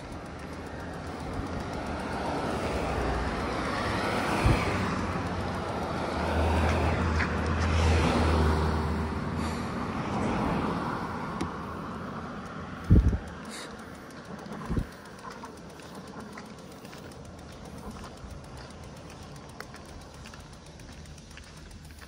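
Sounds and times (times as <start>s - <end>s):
vehicle passing on road: 0.0s - 22.0s.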